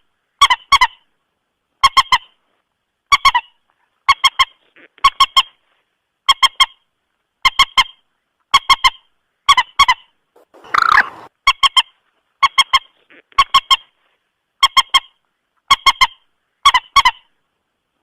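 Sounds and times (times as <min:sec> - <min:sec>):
moorhen honking call: 0:10.4 - 0:11.3.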